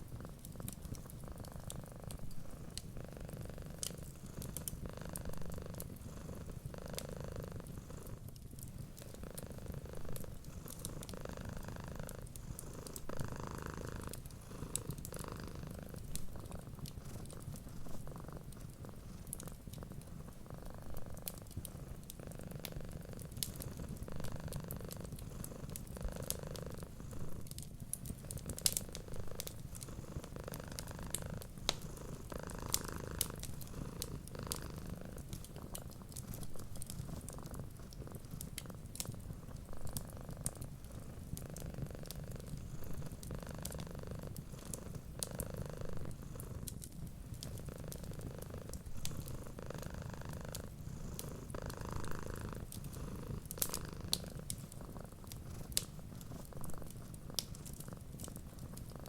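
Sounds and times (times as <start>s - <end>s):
wood fire crackling: 0.0s - 6.7s, 7.4s - 59.0s
cat purring: 0.0s - 59.0s.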